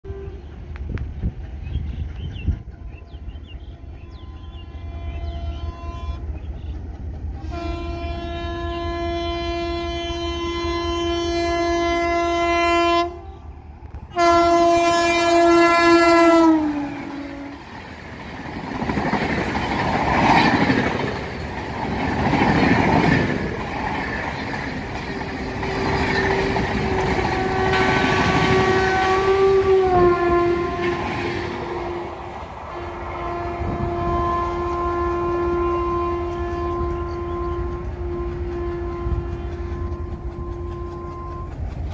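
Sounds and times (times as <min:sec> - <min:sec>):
locomotive horn blasts: 0:00.0 - 0:00.4, 0:03.8 - 0:06.4, 0:07.4 - 0:17.7, 0:24.9 - 0:41.8
train coaches clickety-clack: 0:00.1 - 0:12.9, 0:13.8 - 0:41.9.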